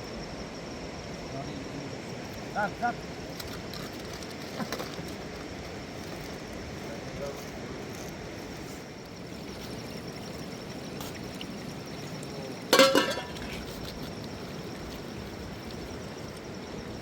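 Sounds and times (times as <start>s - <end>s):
background hiss: 0.0s - 17.0s
sharp ringing clink: 12.8s - 13.4s.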